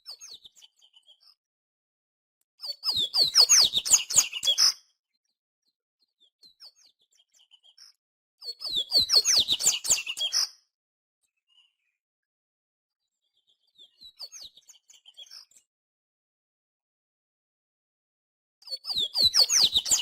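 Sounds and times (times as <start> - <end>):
bird twittering song: 0.0 - 1.4, 2.6 - 5.4, 6.0 - 10.6, 11.2 - 11.9, 13.1 - 15.7, 18.6 - 20.0.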